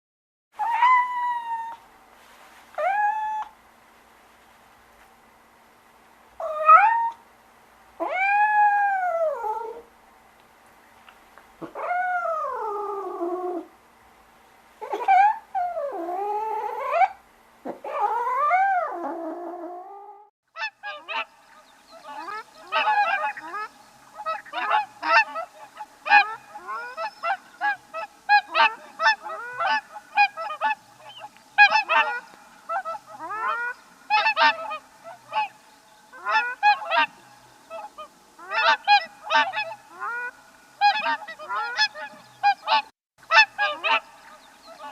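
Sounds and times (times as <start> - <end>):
long wavering swan calls: 0.6 - 3.6, 6.4 - 7.3, 8.0 - 9.9, 11.6 - 13.7, 14.8 - 44.9
swans honking: 20.6 - 44.9.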